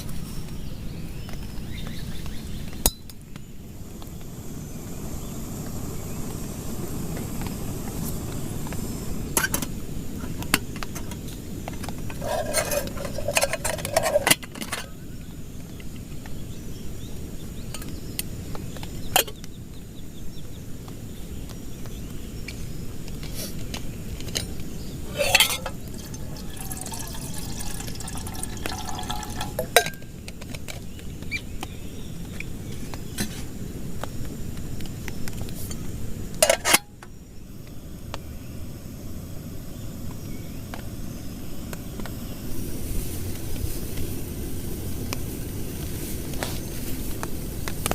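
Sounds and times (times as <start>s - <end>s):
cookware clinking and knocking: 25.1s - 30.0s.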